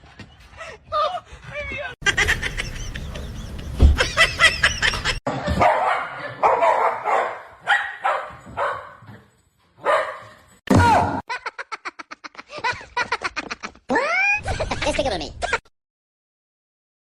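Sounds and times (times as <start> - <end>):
dog barking: 5.5 - 9.1, 9.8 - 10.4.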